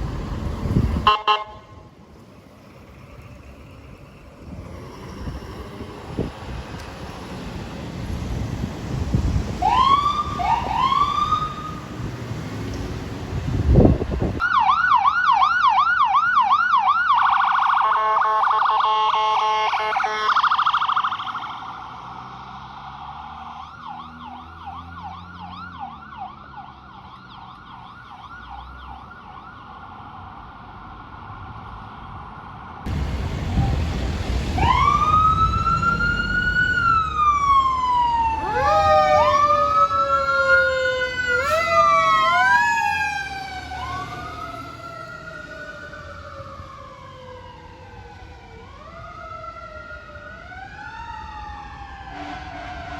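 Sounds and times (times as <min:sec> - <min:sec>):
emergency sirens: 0:00.0 - 0:52.9
engine rumble: 0:01.7 - 0:14.4, 0:32.8 - 0:52.0.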